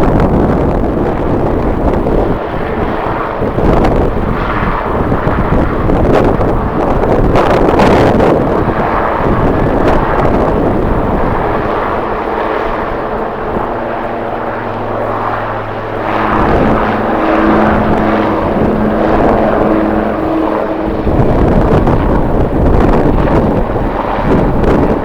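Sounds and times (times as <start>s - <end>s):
jet engines humming: 0.0s - 25.0s
wind buffeting microphone: 0.0s - 25.0s
higher engine tone: 12.7s - 23.6s.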